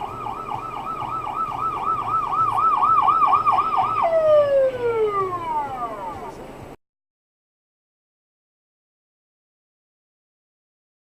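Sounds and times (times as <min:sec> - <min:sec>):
electronic siren yelping: 0:00.0 - 0:06.4.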